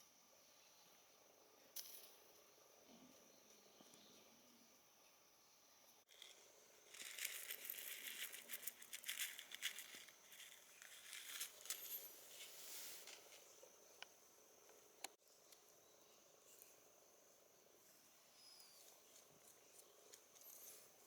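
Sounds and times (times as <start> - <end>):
faint insect drone: 0.0 - 21.0
dry rustling and crackling: 6.1 - 13.5.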